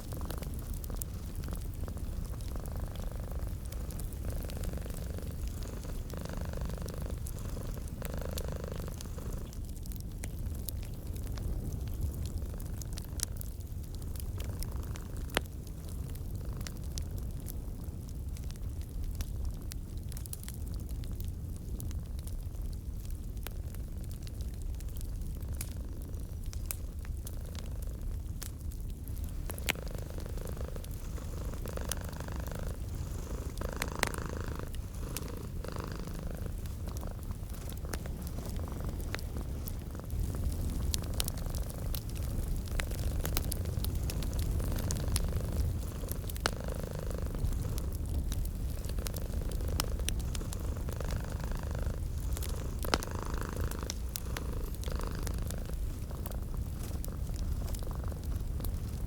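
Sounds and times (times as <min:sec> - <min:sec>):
cat purring: 0:00.0 - 0:17.2, 0:23.7 - 0:59.0
wood fire crackling: 0:00.0 - 0:59.0.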